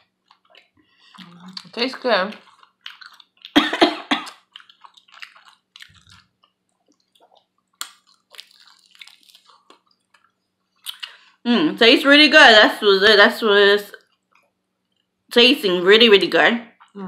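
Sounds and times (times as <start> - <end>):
chewing and lip-smacking: 0.0 - 11.2
wet mouth clicks: 2.3 - 11.2.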